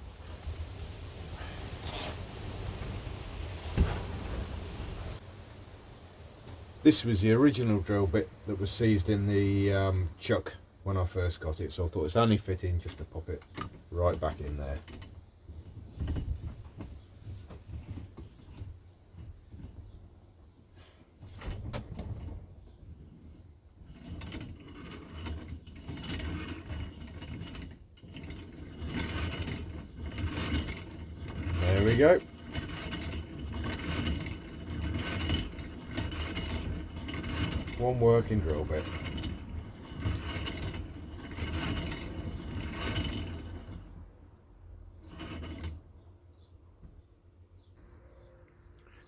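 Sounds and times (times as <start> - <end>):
hand drill gears rattling: 11.8 - 17.0, 23.1 - 44.1, 45.0 - 45.8.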